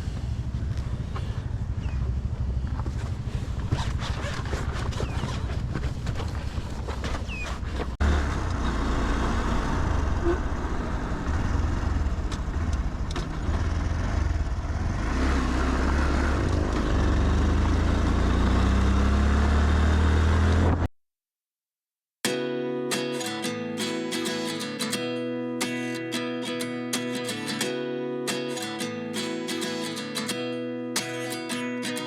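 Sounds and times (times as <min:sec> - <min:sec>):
motorcycle engine: 0:00.0 - 0:20.9.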